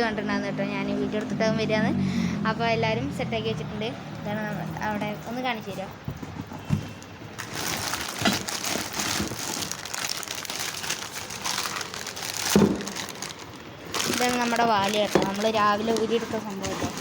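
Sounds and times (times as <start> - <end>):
plastic packaging crinkling: 7.3 - 17.0.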